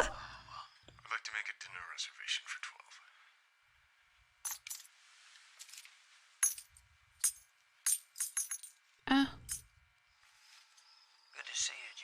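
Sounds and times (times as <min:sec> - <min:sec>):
light metallic clinks: 0:04.5 - 0:04.9, 0:06.4 - 0:08.8, 0:09.4 - 0:09.8.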